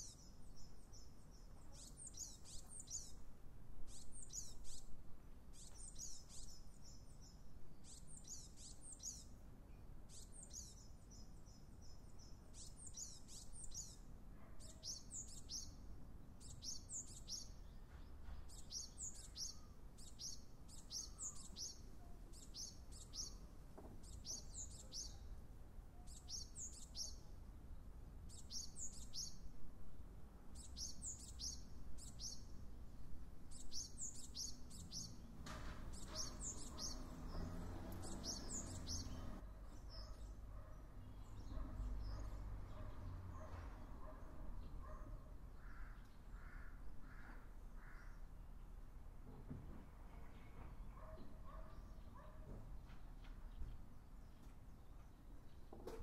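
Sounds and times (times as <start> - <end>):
bird chirping high-pitched: 35.9 - 40.4.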